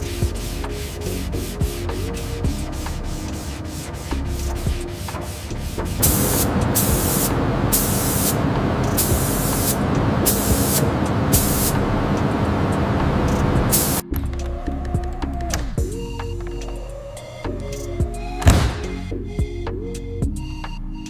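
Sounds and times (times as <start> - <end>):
spraying hiss bursts: 3.2 - 14.0
steady rush of noise: 3.6 - 14.0.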